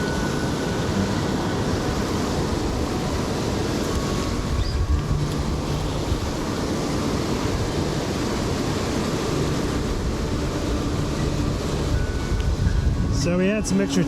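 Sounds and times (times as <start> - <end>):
fast-flowing river rushing: 0.0 - 14.0.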